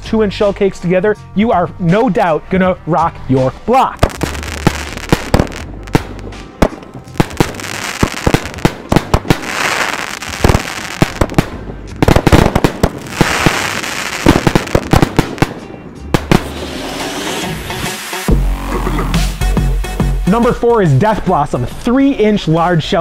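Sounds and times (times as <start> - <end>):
firework booms: 4.0 - 17.8
fireworks hissing: 4.0 - 18.3.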